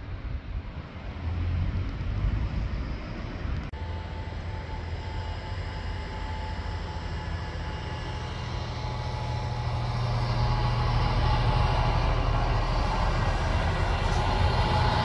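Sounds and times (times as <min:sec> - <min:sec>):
train rumbling: 0:00.0 - 0:15.0
high whine: 0:03.6 - 0:15.0.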